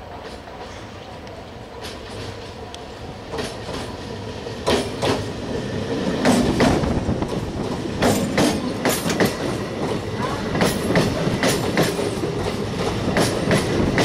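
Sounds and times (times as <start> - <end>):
passing train rumble: 0.0 - 14.0
train wheels clacking over rail joints: 3.3 - 4.0, 4.6 - 5.4, 6.0 - 14.0.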